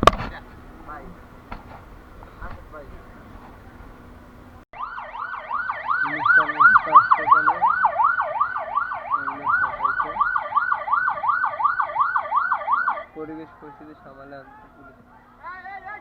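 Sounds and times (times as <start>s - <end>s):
police siren yelping: 4.8s - 13.2s.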